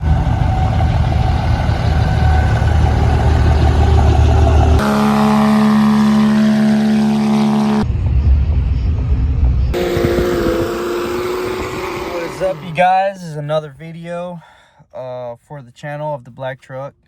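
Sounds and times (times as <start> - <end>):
higher-pitched engine drone: 0.0 - 13.1
diesel pickup exhaust rumble: 0.0 - 13.4.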